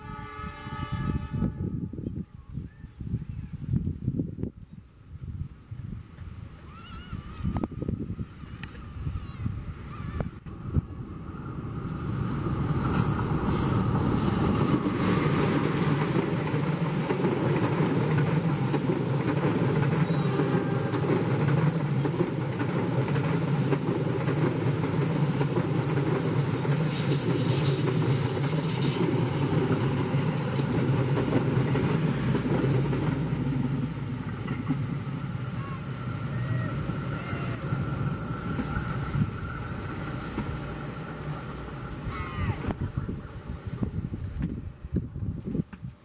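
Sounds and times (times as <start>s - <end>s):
diesel locomotive passing: 0.0s - 2.3s, 7.2s - 45.4s
train wheels on rails: 5.8s - 46.0s.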